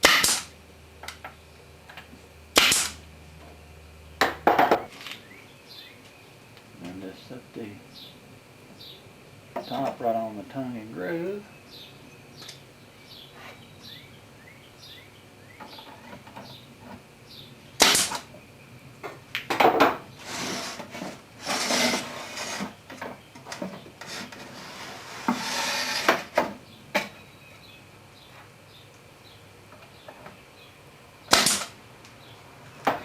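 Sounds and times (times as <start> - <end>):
birds chirping: 4.0 - 20.6, 26.0 - 33.0
wooden boards knocking: 4.2 - 4.9
wood scraping and rustling: 15.6 - 17.1, 19.0 - 27.2.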